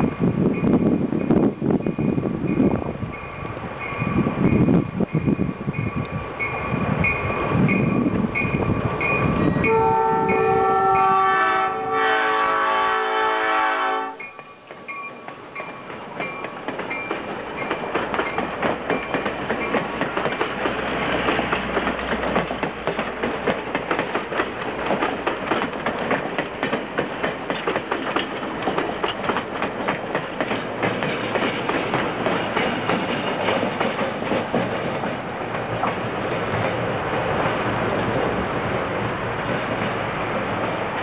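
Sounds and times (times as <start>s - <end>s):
train rolling rumble: 0.0s - 41.0s
train horn: 9.6s - 14.3s
wheels clacking over rail joints: 14.2s - 38.3s.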